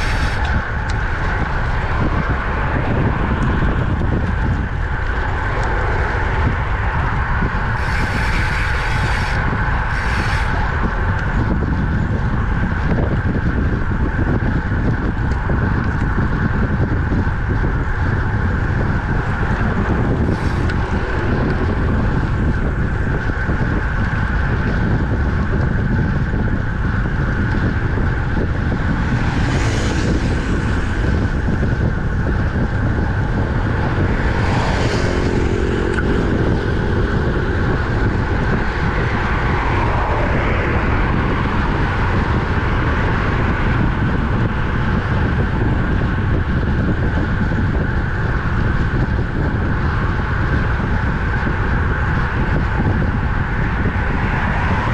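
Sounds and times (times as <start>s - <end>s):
road and traffic noise: 0.0s - 54.9s
vehicles passing: 0.0s - 54.9s
wind rushing on microphone: 0.0s - 54.9s.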